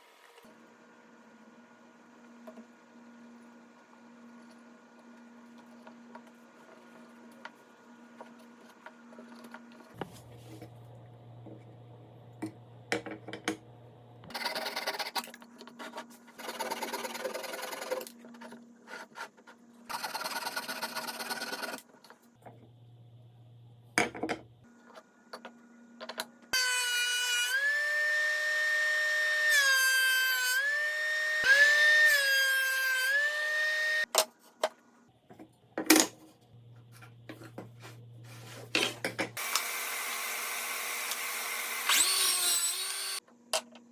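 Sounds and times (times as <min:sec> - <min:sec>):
power tool motor whining: 0:39.4 - 0:43.2.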